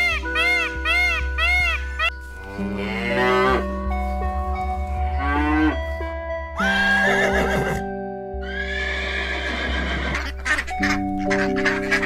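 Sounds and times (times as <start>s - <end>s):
background music: 0.0s - 12.0s
cow mooing: 2.4s - 3.7s.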